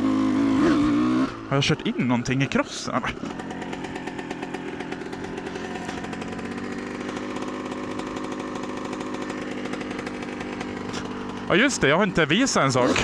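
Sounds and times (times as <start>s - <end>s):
two-stroke engine running: 0.0s - 13.0s.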